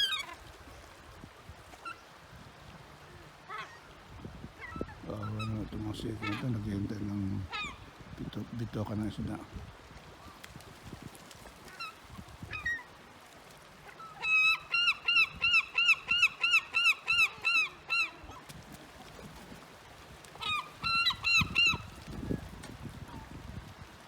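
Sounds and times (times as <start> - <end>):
seagulls calling: 0.0 - 0.6, 3.4 - 4.0, 4.6 - 7.9, 11.6 - 13.0, 13.8 - 19.5, 20.2 - 23.4.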